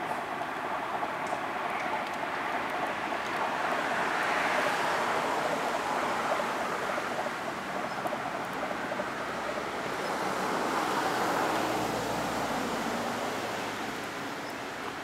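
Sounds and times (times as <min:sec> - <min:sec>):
distant trains rumbling: 0:00.0 - 0:15.0.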